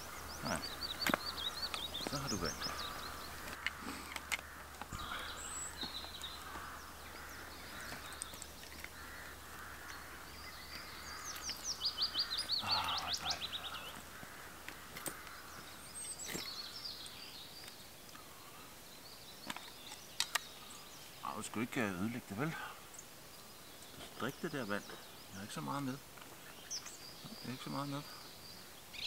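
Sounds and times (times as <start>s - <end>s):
outdoor hiss: 0.0s - 29.0s
songbirds singing: 0.0s - 29.0s
faint clicks: 0.9s - 6.8s, 19.4s - 20.5s.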